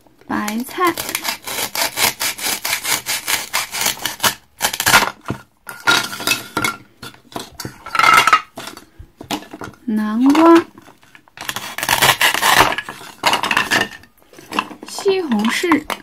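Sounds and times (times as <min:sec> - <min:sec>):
toy knife sawing play food: 0:00.4 - 0:05.0, 0:11.4 - 0:13.2.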